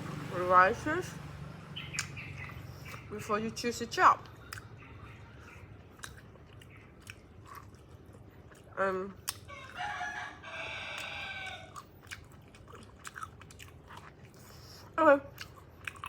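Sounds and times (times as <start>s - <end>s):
faint chewing clicks: 1.8s - 3.2s, 4.2s - 9.9s, 10.9s - 16.0s
rooster crowing: 9.5s - 11.8s.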